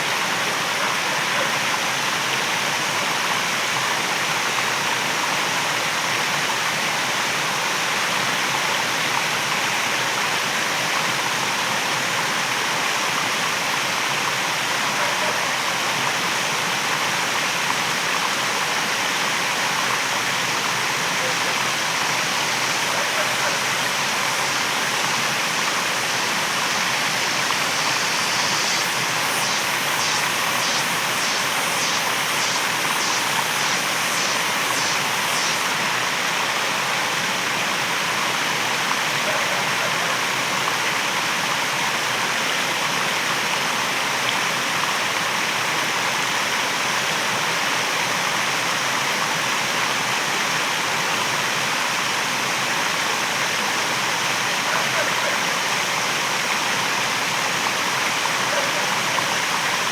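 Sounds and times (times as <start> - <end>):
waterfall rushing: 19.6 - 41.2
high pulsing sound: 22.1 - 35.8.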